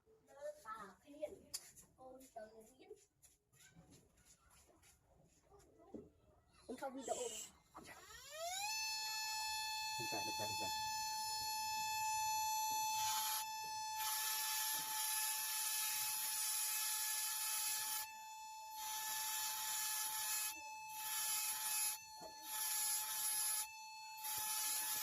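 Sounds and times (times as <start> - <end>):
tool rasping on wood: 18.8 - 25.0.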